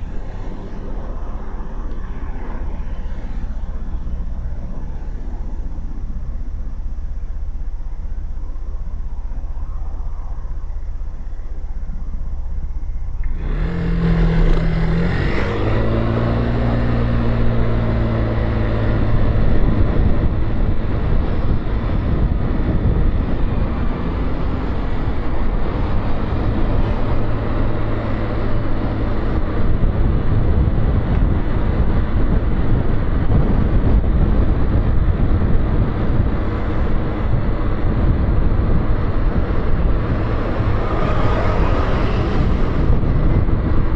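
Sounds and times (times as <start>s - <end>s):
road noise: 0.0s - 43.9s
wind noise: 0.0s - 43.9s
motorcycle engine accelerating: 13.1s - 43.9s.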